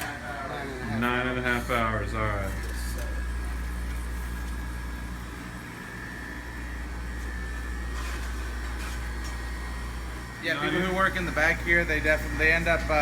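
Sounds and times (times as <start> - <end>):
machinery low rumbling hum: 0.0 - 13.0.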